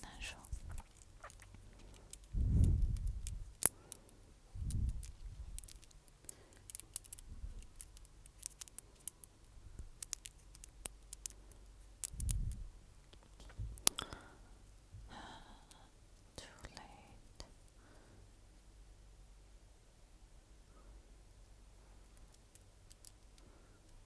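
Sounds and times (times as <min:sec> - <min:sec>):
wet mouth clicks and pops: 0:00.5 - 0:03.4, 0:12.0 - 0:14.2
soft low thuds: 0:02.3 - 0:03.6, 0:13.4 - 0:13.9.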